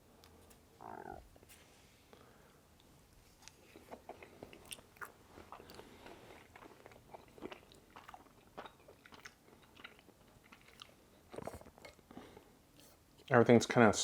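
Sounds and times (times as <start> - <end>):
person chewing food: 2.8 - 13.3.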